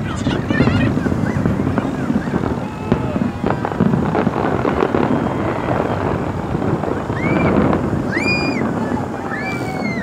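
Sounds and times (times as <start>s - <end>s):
faint crowd voices: 0.0s - 10.0s
fireworks crackling: 0.0s - 10.0s
whistling fireworks: 0.0s - 10.0s.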